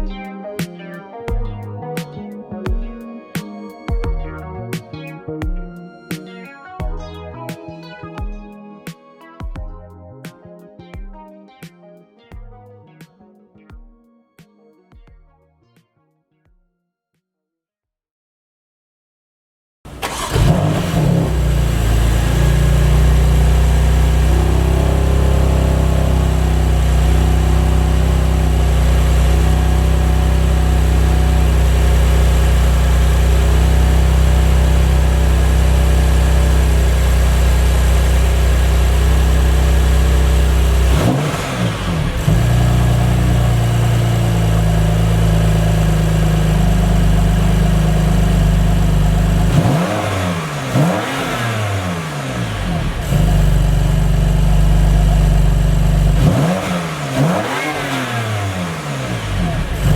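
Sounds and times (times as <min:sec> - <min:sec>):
car engine starting and idling: 0:19.9 - 0:59.9.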